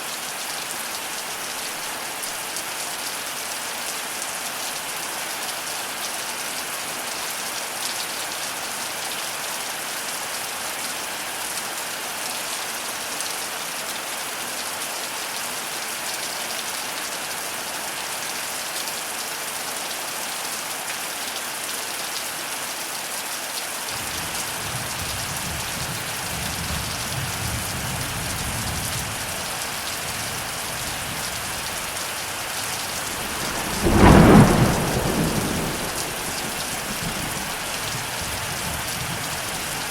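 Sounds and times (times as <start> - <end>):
loud thunder clap: 24.0 - 39.7
heavy rain hissing: 24.0 - 39.9
low rumble of thunder: 24.0 - 39.9.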